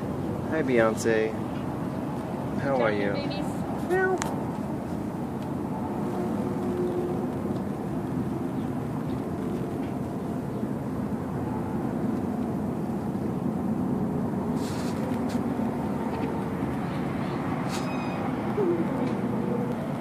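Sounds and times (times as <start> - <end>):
vehicle engines rumbling: 0.0 - 20.0
short rustle: 14.6 - 15.4.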